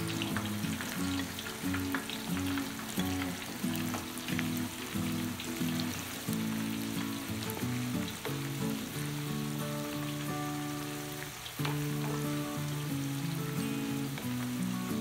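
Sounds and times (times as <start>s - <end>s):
deep-frying sizzle and pops: 0.0s - 15.0s.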